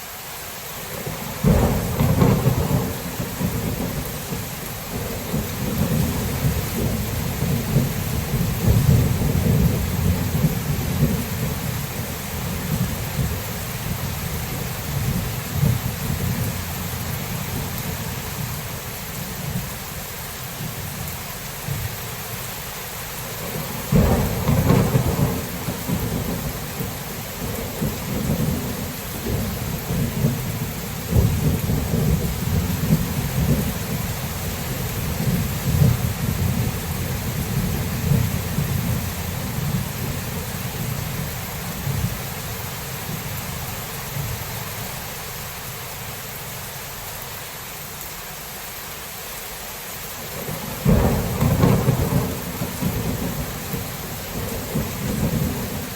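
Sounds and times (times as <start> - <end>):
steady rain hiss: 0.0 - 55.9
loud thunderclap: 1.4 - 11.6, 23.5 - 42.1, 50.4 - 55.9
rolling thunder: 1.4 - 18.4, 23.4 - 42.2, 50.3 - 55.9.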